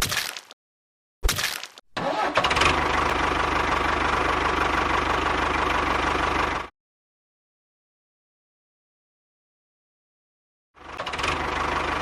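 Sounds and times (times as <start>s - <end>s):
small engine running: 2.0s - 6.7s, 10.8s - 12.0s.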